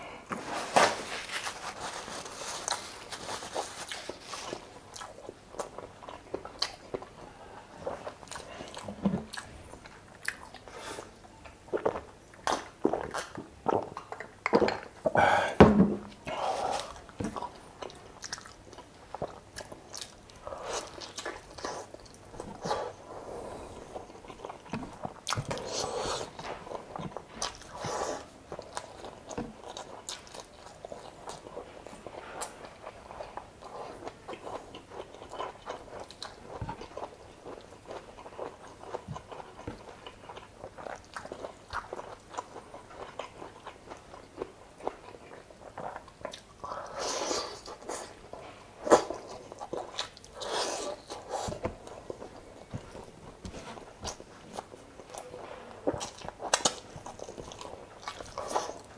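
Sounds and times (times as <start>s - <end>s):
person chewing food: 0.3s - 58.9s.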